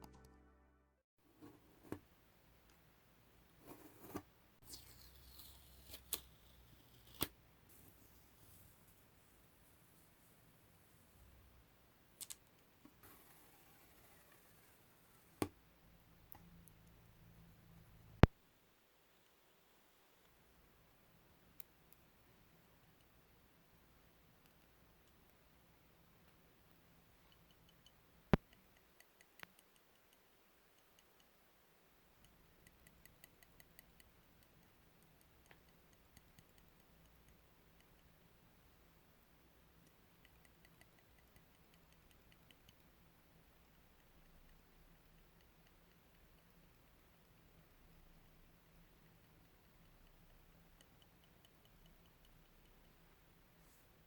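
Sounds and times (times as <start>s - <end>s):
small objects clicking and tapping: 12.2s - 12.6s.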